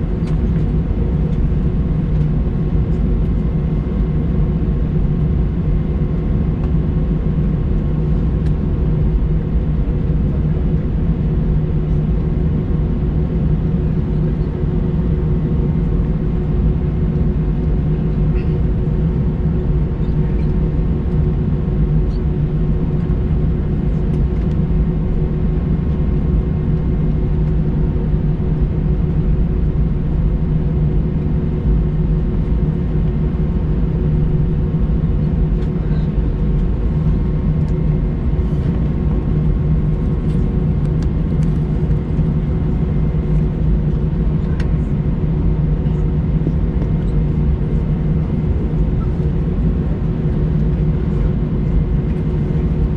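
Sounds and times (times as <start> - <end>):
aircraft cabin rumble and hum: 0.0 - 52.9.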